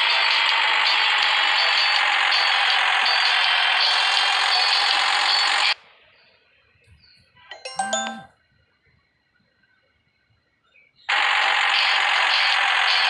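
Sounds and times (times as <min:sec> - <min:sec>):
ringing chime: 0:07.5 - 0:08.3.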